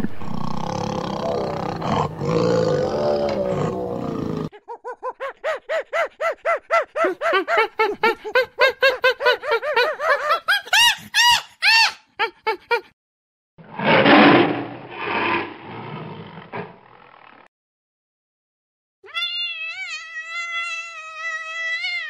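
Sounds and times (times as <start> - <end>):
lion growling: 0.0 - 5.1
chimpanzee hooting calls: 1.2 - 12.0.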